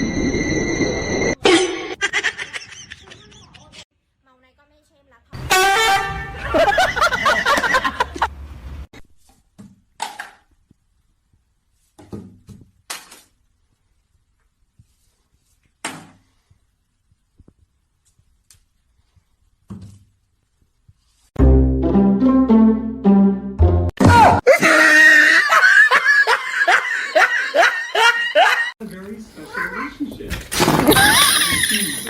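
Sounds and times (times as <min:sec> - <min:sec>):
music: 0:21.4 - 0:23.9.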